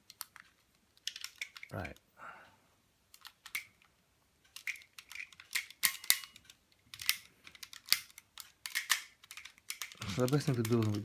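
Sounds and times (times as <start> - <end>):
plastic toy parts clicking: 0.0 - 2.0, 3.1 - 11.0.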